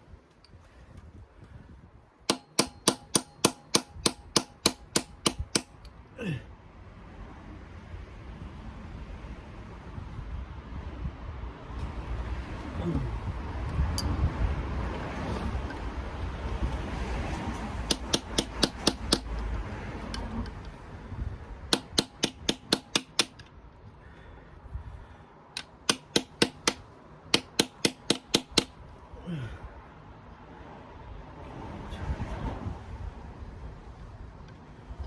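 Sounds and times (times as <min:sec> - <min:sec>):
hammer tapping on metal: 0:02.3 - 0:05.9, 0:17.8 - 0:19.5, 0:21.7 - 0:23.5, 0:25.6 - 0:28.8.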